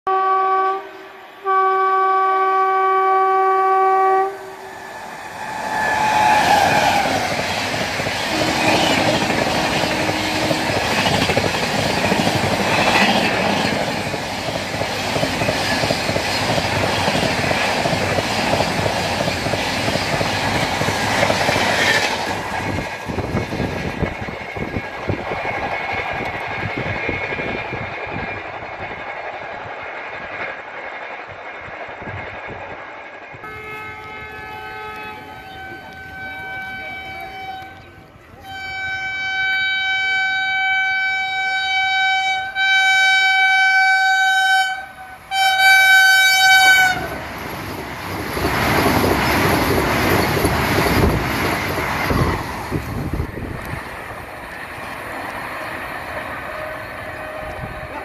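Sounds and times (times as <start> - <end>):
train horn blast: 0.1 - 7.4, 8.2 - 11.1, 33.4 - 47.2, 56.4 - 58.0
train rumble: 0.1 - 58.0
train rushing past: 0.4 - 58.0.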